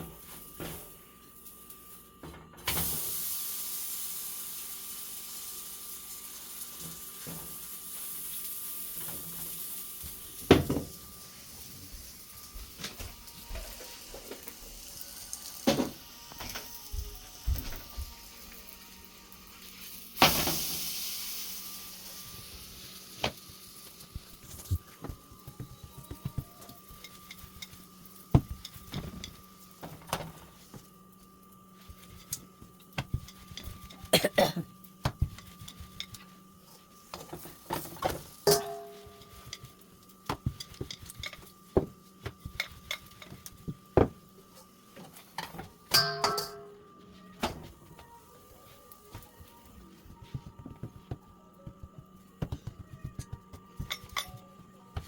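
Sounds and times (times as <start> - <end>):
sizzling in a hot pan: 0.0 - 34.1, 34.7 - 46.6
utensils knocking against pan: 38.4 - 39.7, 45.4 - 46.8.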